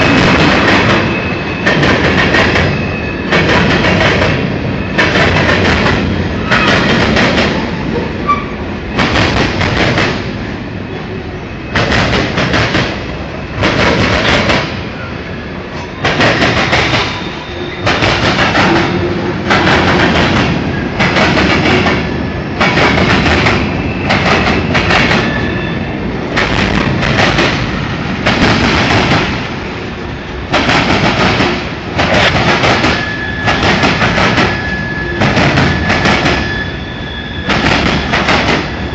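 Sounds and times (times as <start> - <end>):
high wheel squeal: 0.0 - 3.7, 7.6 - 9.0, 10.5 - 11.9, 16.7 - 19.4, 23.5 - 26.0, 32.9 - 38.9
steel wheels rushing on rail: 0.0 - 38.9.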